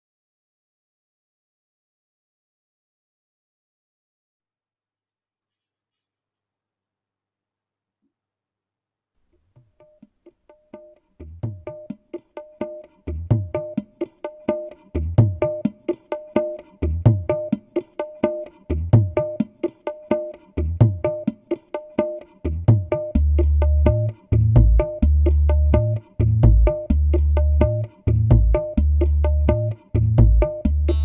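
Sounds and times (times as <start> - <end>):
low bass notes: 23.2 - 31.0.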